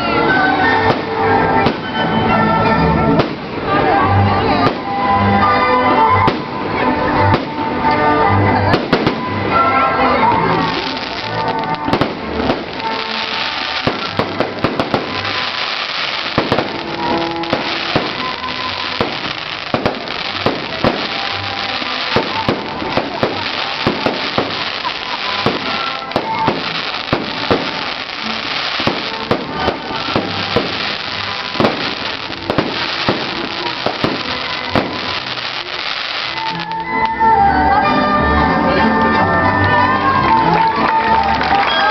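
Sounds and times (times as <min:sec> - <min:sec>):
fireworks crackling: 0:00.0 - 0:37.1
fireworks bangs: 0:08.7 - 0:09.8, 0:10.5 - 0:36.8.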